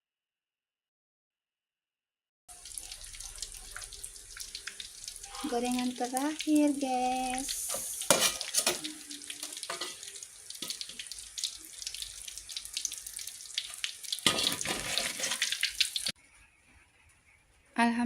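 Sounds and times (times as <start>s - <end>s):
deep-frying in hot oil sizzling: 2.5s - 16.2s.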